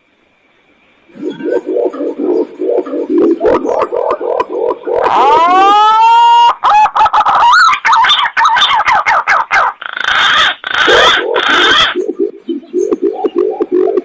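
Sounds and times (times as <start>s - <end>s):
warbling bird glides: 0.9s - 5.9s, 10.7s - 14.0s
harsh hissing bird calls: 7.6s - 14.0s.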